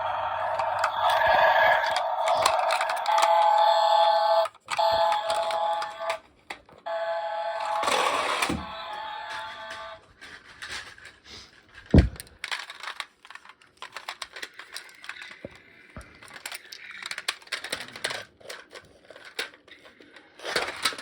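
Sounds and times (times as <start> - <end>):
plastic toy trucks clicking and rattling: 0.0 - 6.8, 7.5 - 21.0
heavy thump: 11.9 - 12.2.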